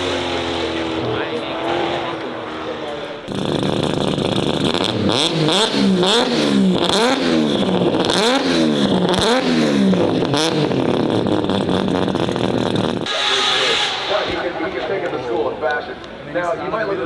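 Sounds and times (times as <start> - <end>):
car engine revving: 0.0 - 15.7
short sharp bangs: 13.0 - 16.1.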